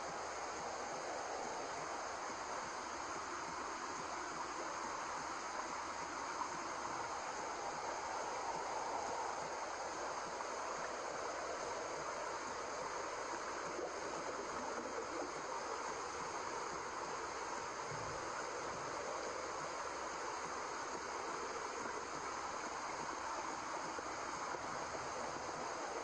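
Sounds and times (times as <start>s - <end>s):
white noise hiss: 0.0s - 26.0s.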